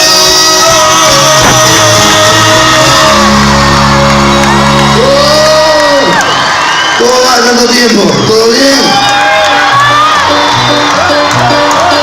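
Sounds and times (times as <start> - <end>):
live band playing: 0.0 - 6.7, 7.4 - 12.0
held bass note: 0.7 - 5.6
crowd shouting and whooping: 1.4 - 12.0.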